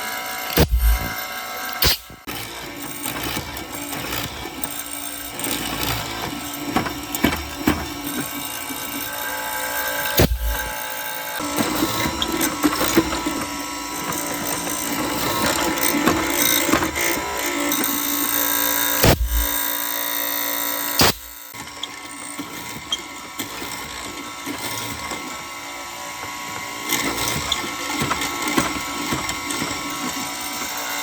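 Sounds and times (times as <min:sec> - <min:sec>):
power tool whirring: 0:00.0 - 0:31.0
knocks and clicks: 0:00.6 - 0:01.2, 0:10.2 - 0:10.7, 0:19.0 - 0:19.6.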